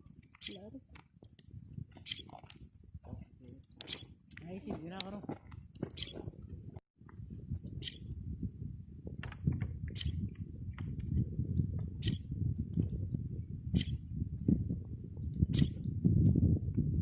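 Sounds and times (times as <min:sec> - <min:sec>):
low crackling rumble: 0:00.0 - 0:17.0
bird high call: 0:06.0 - 0:06.2, 0:07.8 - 0:08.0.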